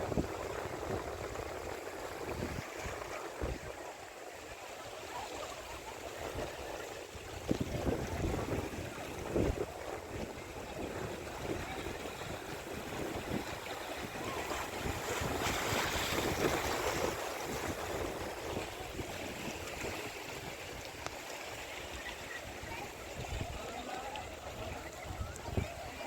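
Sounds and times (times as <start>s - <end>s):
wind buffeting microphone: 0.0s - 3.7s, 7.2s - 20.8s, 22.6s - 26.0s
sea waves washing on shore: 0.0s - 26.0s.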